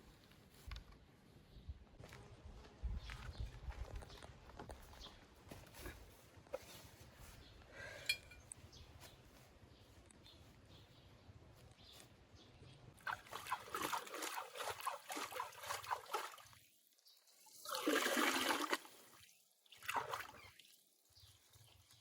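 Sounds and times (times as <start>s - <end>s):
water pouring and splashing: 13.0s - 22.0s.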